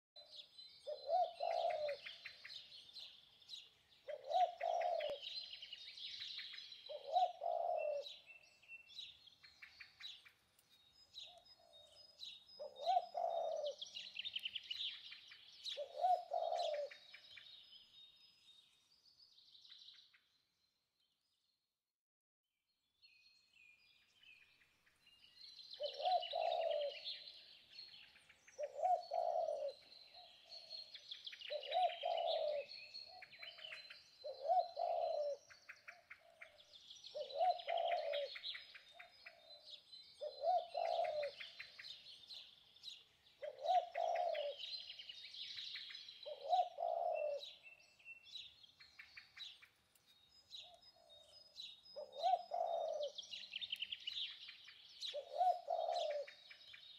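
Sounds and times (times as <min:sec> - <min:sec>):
small birds chirping and twittering: 0:00.2 - 0:21.7, 0:22.7 - 0:56.9
low bird call: 0:55.0 - 0:56.4.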